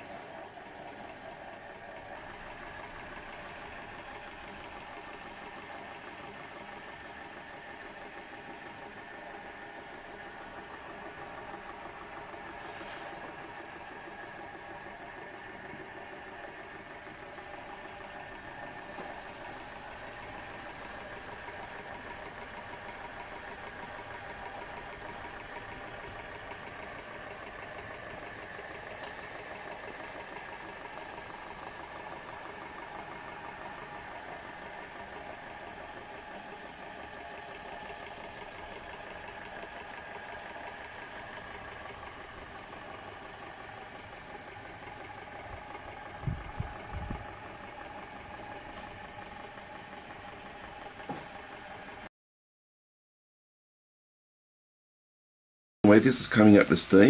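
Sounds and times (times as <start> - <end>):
small model engine clattering: 20.2 - 51.5.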